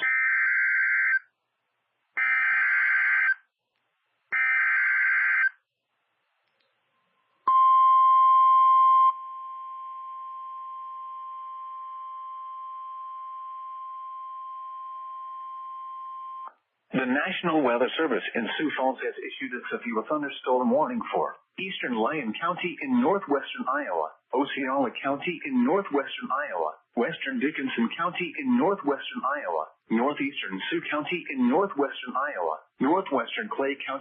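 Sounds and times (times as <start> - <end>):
steady alarm tone: 0.0 - 1.2, 2.2 - 3.5, 4.4 - 5.6.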